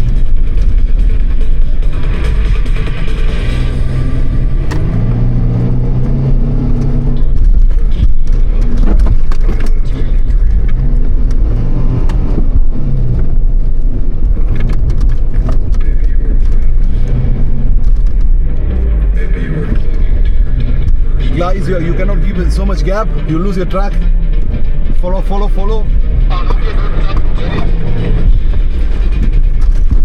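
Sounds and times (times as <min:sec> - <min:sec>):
vehicle engine accelerating: 0:00.0 - 0:30.0
knocks and rattles over bumps: 0:06.8 - 0:26.3, 0:27.0 - 0:30.0.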